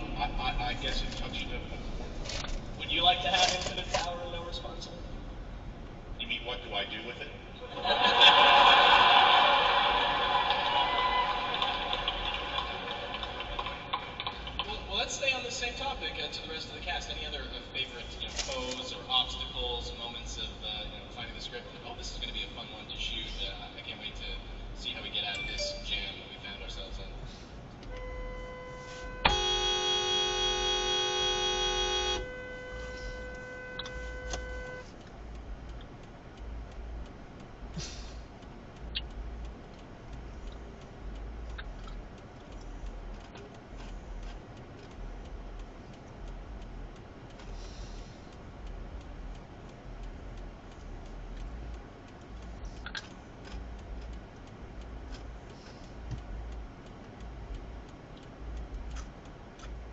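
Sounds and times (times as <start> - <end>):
vehicle and road rumble: 0.0 - 59.9
quieter steady horn tone: 27.8 - 35.0
car horn blaring: 27.9 - 34.9.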